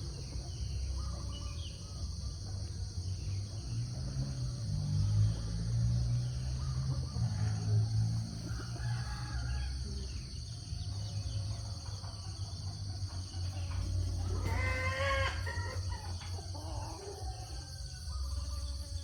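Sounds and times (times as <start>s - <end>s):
farm animal call: 13.5s - 19.0s.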